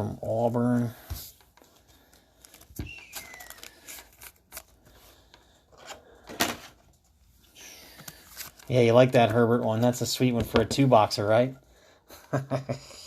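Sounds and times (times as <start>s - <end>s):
trading cards clicking and rustling: 1.4s - 6.8s.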